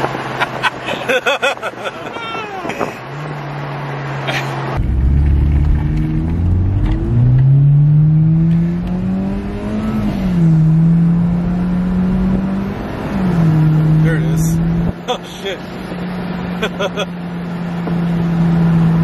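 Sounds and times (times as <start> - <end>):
turbocharged car engine accelerating: 2.8 - 19.0.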